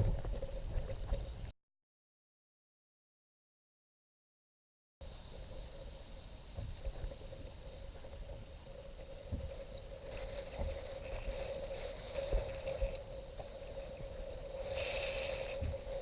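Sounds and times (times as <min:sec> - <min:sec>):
faint steady hum: 0:00.0 - 0:01.5, 0:05.0 - 0:16.0
water lapping against kayak hull: 0:05.2 - 0:16.0.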